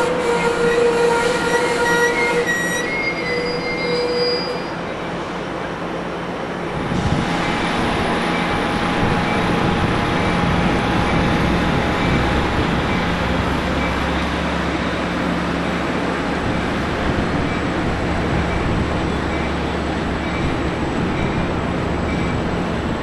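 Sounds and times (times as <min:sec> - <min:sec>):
diesel locomotive rumbling: 0:00.0 - 0:23.0
train rolling noise: 0:00.0 - 0:23.0
faint wheel squeal: 0:01.5 - 0:04.9.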